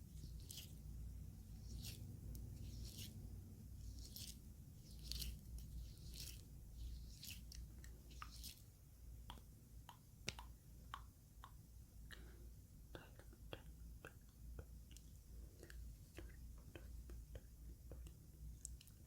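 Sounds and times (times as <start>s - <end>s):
wet squishing: 0.0s - 11.6s.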